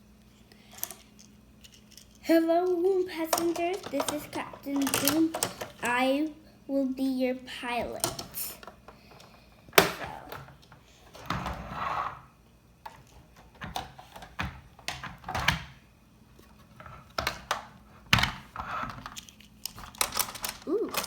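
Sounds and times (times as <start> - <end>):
plastic toy pieces clicking: 3.2 - 5.9, 19.2 - 21.0.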